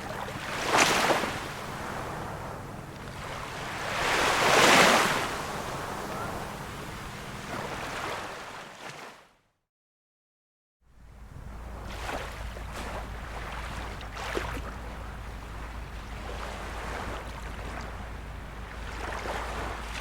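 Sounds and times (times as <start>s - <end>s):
waves lapping on shore: 0.0s - 9.3s, 11.0s - 20.0s
low rumble: 10.9s - 20.0s.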